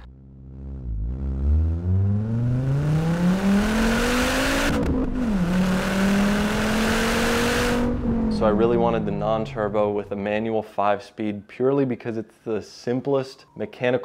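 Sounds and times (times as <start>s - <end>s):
car engine accelerating: 0.0s - 10.5s.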